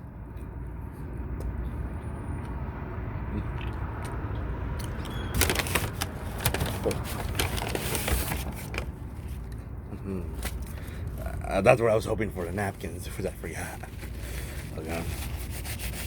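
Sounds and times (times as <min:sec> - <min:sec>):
paper bag rustling and crinkling: 0:05.3 - 0:09.5.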